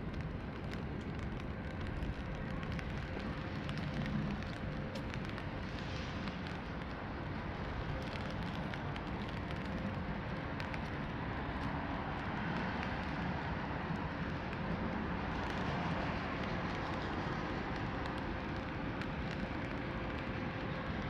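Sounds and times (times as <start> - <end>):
drops ticking on umbrella: 0.0 - 21.0
steady rain falling: 0.0 - 21.0.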